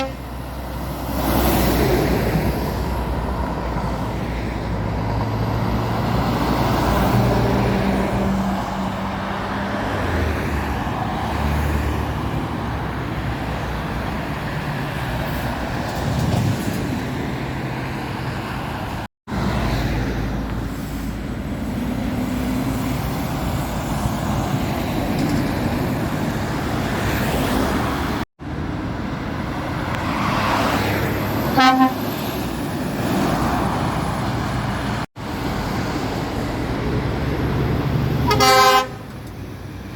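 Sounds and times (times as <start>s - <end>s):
short horn toot: 0.0s - 0.2s, 31.6s - 32.1s, 38.3s - 39.0s
traffic passing: 0.0s - 39.9s.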